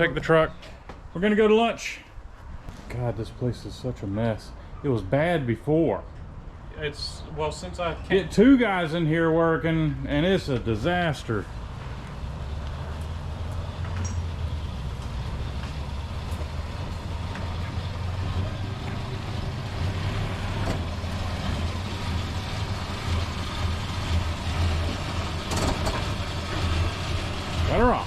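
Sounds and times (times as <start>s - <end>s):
car engine droning: 7.5s - 28.0s.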